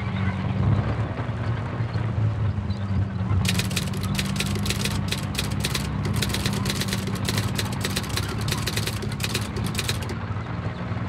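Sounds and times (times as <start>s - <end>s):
typewriter keys clacking: 3.4s - 10.2s.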